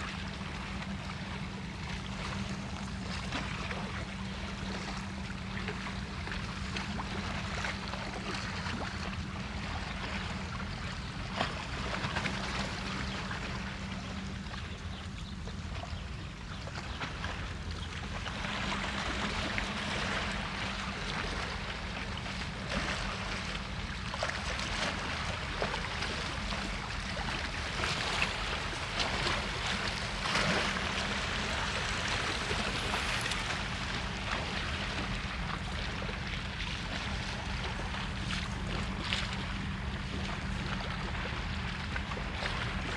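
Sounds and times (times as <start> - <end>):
faint steady hum: 0.0 - 42.9
low rumble: 23.1 - 41.5
even hiss: 30.9 - 34.1.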